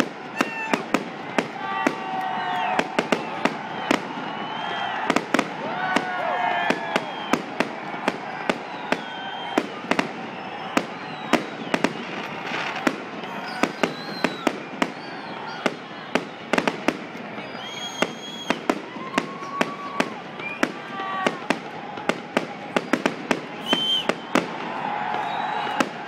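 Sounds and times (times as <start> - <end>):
fireworks bangs: 0.0 - 26.0
fireworks crackling: 0.0 - 26.0
fireworks whistles: 0.0 - 26.0.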